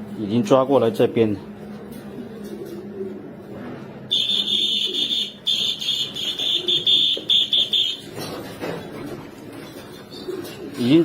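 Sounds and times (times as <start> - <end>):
high-pitched whistle signal tone: 4.1 - 8.0.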